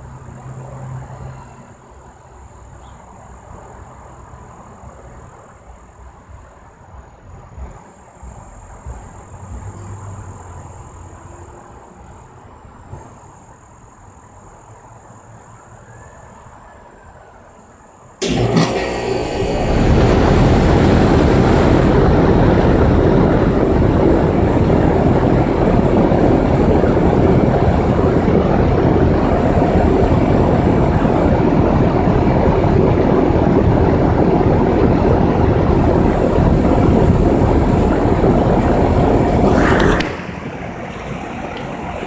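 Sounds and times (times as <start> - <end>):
air conditioner fan rushing: 18.2 - 42.0
low hum: 18.2 - 42.0.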